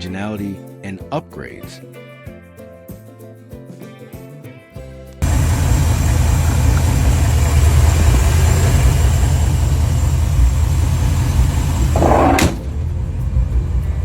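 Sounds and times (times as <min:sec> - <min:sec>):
truck engine idling: 0:05.2 - 0:14.0.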